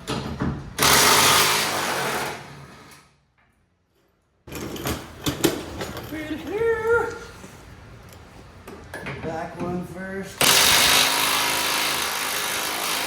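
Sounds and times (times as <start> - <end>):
impact wrench hammering: 10.4 - 13.0.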